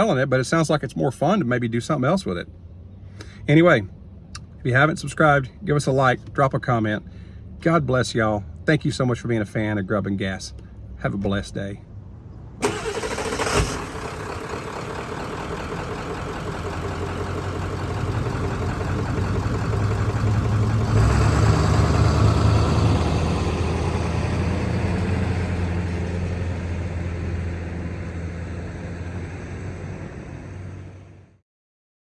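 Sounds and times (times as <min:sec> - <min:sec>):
diesel engine running: 0:12.6 - 0:31.4.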